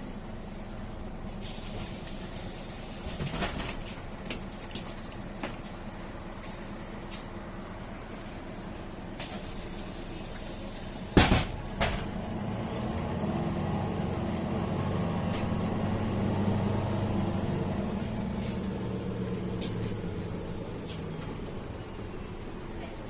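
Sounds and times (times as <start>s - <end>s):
bus engine humming: 0.0s - 23.0s
loud thump: 11.2s - 12.2s.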